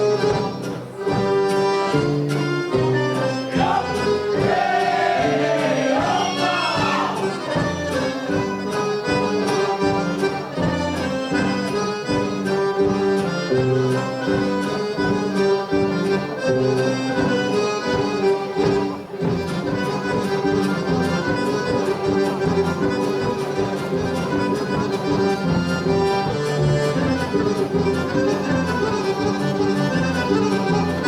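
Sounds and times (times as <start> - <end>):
accordion folk music: 0.0 - 31.0
voice calling out: 3.6 - 7.4.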